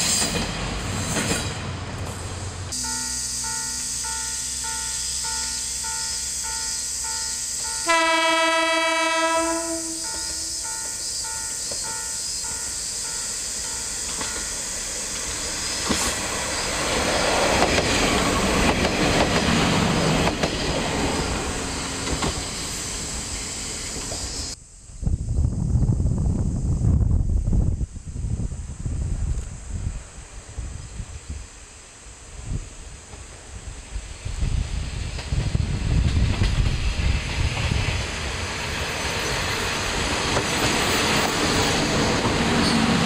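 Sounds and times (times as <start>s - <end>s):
wheels clacking over rail joints: 0.0s - 2.4s, 10.1s - 22.9s, 37.3s - 43.0s
railcar rumbling past: 0.0s - 24.6s, 32.1s - 43.0s
train horn blast: 2.7s - 11.0s
repeating ringing tone: 2.8s - 7.9s.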